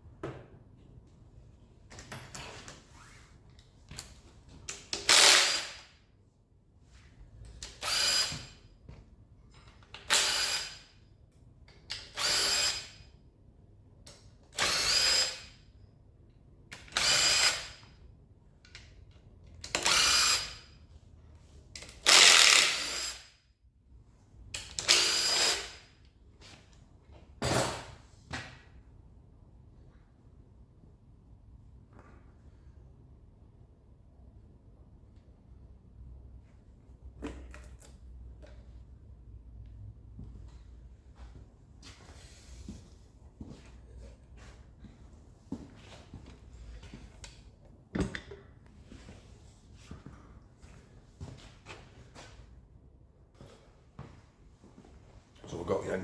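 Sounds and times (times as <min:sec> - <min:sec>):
cordless power driver bursts: 0:22.0 - 0:23.3.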